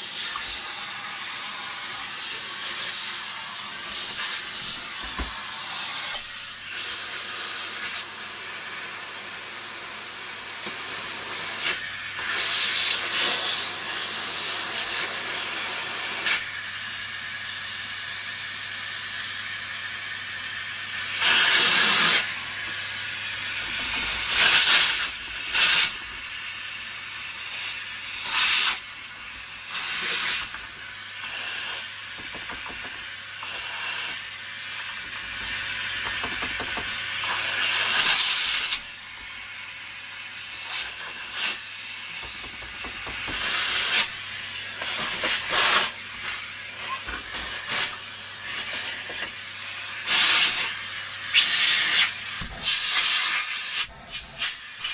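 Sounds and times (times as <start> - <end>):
blasts of compressed air: 50.0 - 54.9.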